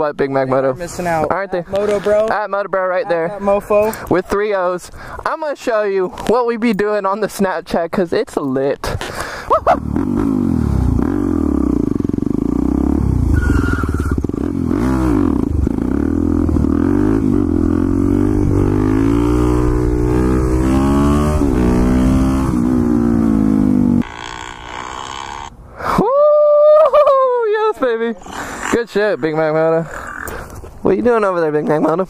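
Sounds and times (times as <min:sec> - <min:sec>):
motorcycle engine revving: 0:09.6 - 0:25.5.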